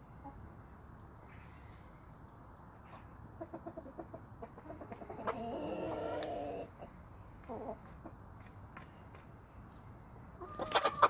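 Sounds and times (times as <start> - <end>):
chickens clucking: 0.2 - 0.5, 3.0 - 8.5, 10.3 - 11.0.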